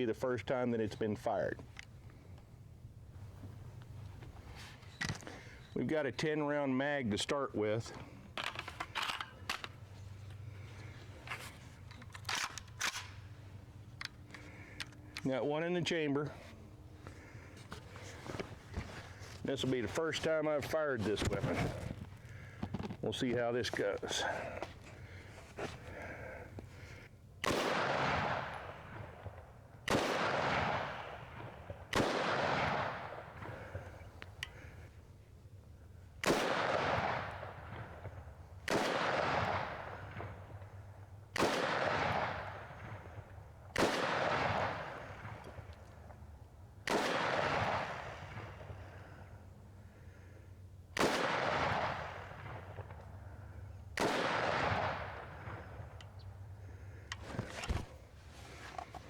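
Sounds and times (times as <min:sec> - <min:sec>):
rifle shots with echo: 0:27.4 - 0:34.0, 0:36.2 - 0:40.7, 0:41.3 - 0:45.8, 0:46.8 - 0:49.2, 0:51.0 - 0:53.0, 0:54.0 - 0:55.8.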